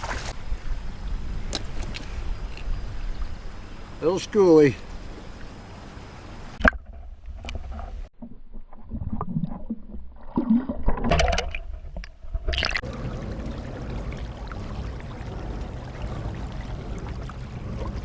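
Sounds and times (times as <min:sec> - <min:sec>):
water splash: 0:00.0 - 0:00.4, 0:08.2 - 0:18.0
underwater sloshing and gurgling: 0:04.9 - 0:18.0.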